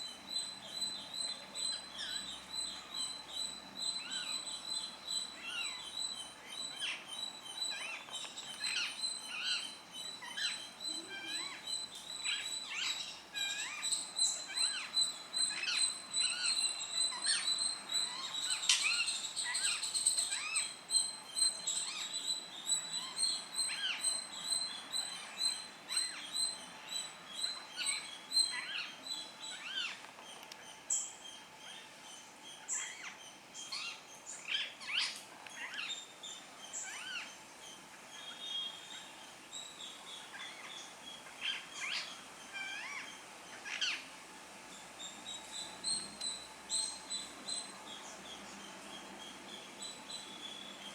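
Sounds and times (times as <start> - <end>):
birds chirping: 44.7 - 50.9.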